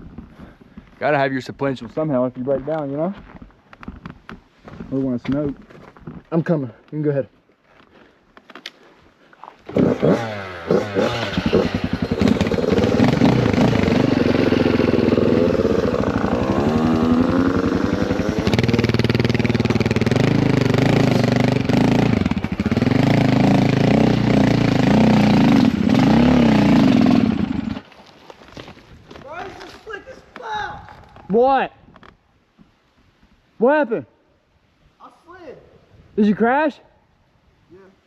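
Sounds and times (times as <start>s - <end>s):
dirt bike engine revving: 9.7s - 27.9s.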